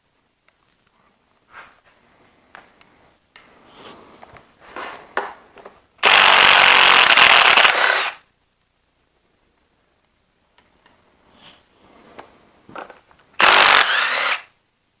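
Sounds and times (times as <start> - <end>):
impact wrench running: 6.0 - 8.2, 13.4 - 14.4.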